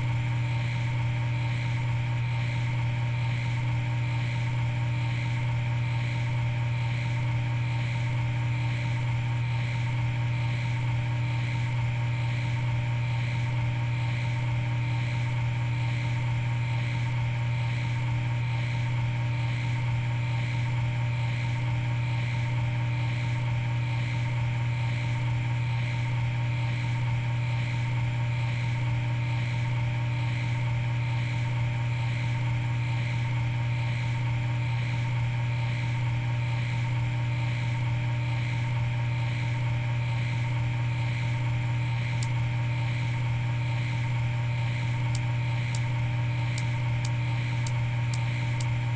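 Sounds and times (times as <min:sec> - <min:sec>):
equipment humming: 0:41.3 - 0:48.9.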